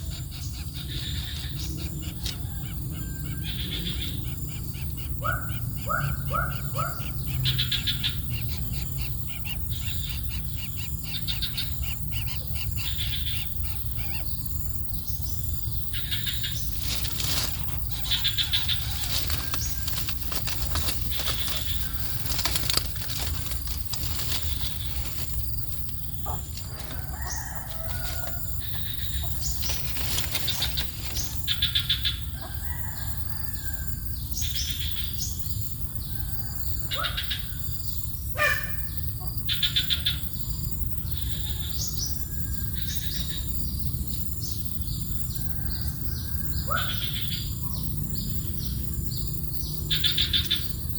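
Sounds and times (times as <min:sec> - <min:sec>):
small birds chirping: 0:00.0 - 0:50.9
steady low rumble: 0:14.6 - 0:32.3.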